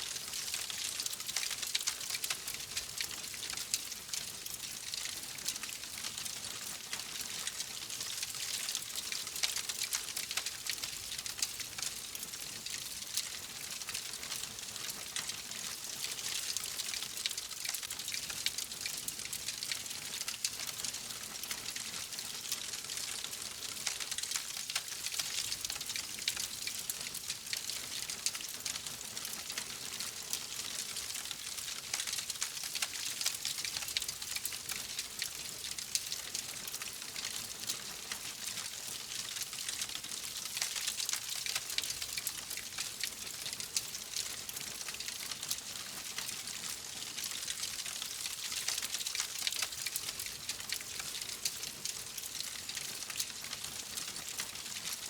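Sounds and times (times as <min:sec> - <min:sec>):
fire crackling and popping: 0:47.9 - 0:55.0.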